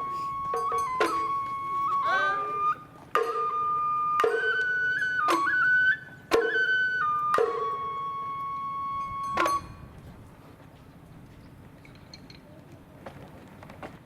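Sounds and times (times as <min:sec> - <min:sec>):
sharp percussion strikes: 0:00.0 - 0:10.0
bamboo flute melody: 0:00.0 - 0:10.3.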